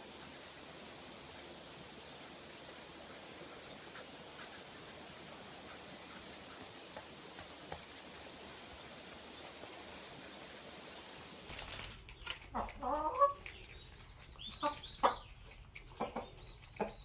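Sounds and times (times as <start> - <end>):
chicken clucking and squawking: 12.5 - 17.0.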